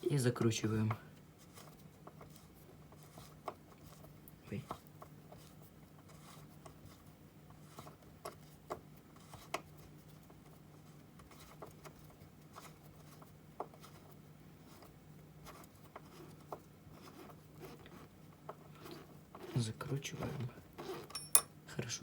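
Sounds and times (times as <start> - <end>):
bolt clicking and rubbing: 21.0 - 21.5.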